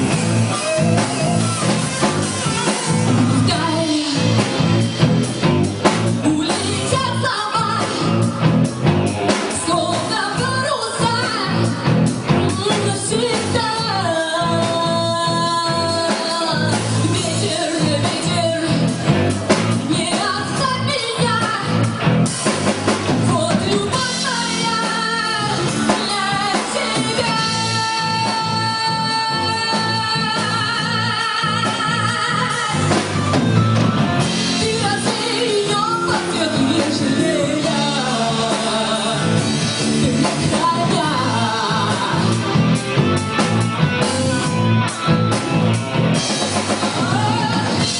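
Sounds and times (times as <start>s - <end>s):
band playing pop-rock song: 0.0s - 47.9s
woman singing with vibrato: 2.8s - 4.8s, 6.2s - 8.5s, 9.5s - 19.1s, 19.8s - 22.0s, 23.2s - 33.6s, 34.3s - 42.8s, 46.7s - 47.9s.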